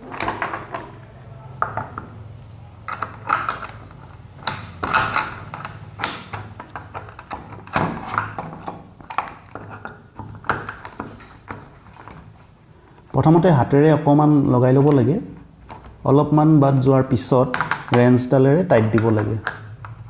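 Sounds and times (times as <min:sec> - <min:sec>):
clicks knocks and rattles of parts: 0:00.0 - 0:01.0, 0:02.8 - 0:12.4, 0:17.5 - 0:18.2.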